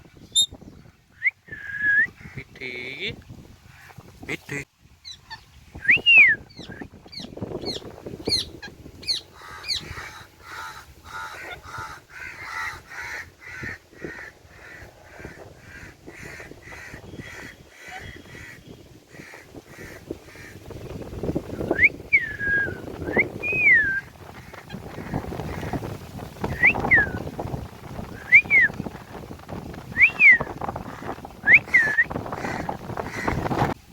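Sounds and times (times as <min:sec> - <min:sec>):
parakeet calling: 0:00.2 - 0:00.5, 0:06.5 - 0:13.7.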